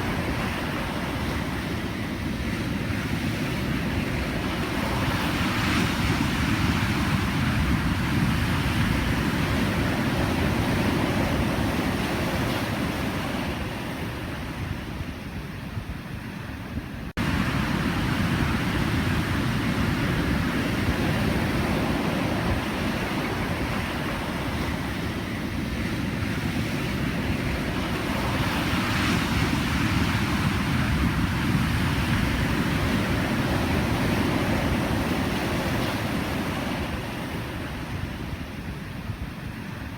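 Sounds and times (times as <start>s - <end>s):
waves breaking: 17.2s - 25.5s.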